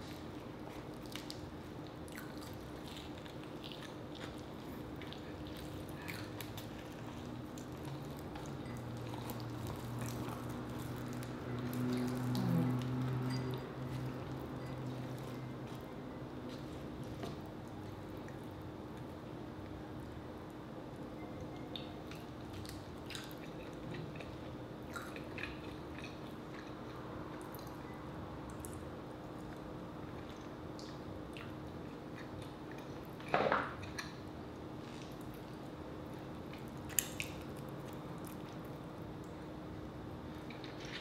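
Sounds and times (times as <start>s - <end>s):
person chewing chicken: 0.0s - 15.9s, 22.1s - 27.8s
faint steady hum: 0.0s - 41.0s.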